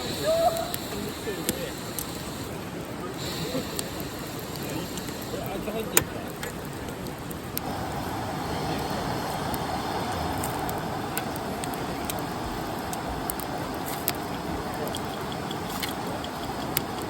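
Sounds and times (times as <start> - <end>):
campfire crackling: 0.0 - 17.0
river rushing: 0.0 - 17.0
faint insect chirping: 14.7 - 17.0.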